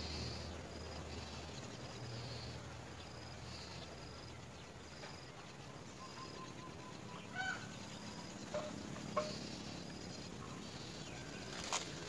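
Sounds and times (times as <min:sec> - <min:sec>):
insects chirping: 0:00.0 - 0:12.0
outdoor hiss: 0:00.0 - 0:12.0
honk-like bird call: 0:07.3 - 0:07.7.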